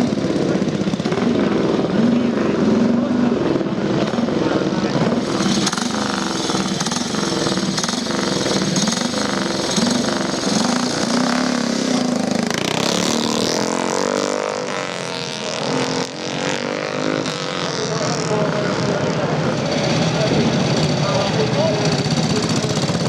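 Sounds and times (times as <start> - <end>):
motorcycle engines revving: 0.0 - 23.0.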